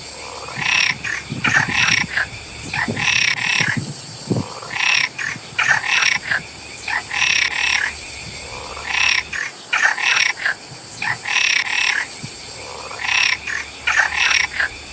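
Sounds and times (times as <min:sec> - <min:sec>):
faint high hiss: 0:00.0 - 0:14.9
frogs croaking: 0:00.0 - 0:14.9.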